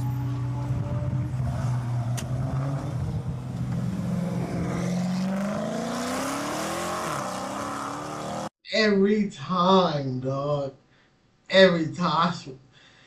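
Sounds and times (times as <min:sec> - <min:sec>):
car engine revving up: 0:00.3 - 0:08.5.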